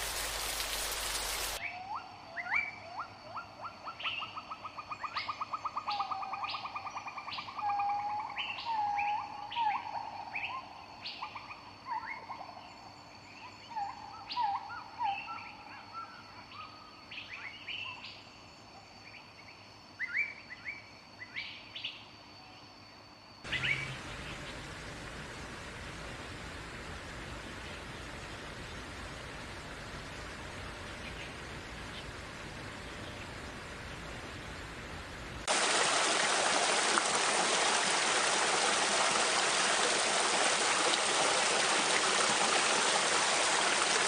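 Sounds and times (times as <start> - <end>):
steady hiss: 0.0 - 1.6, 23.5 - 44.0.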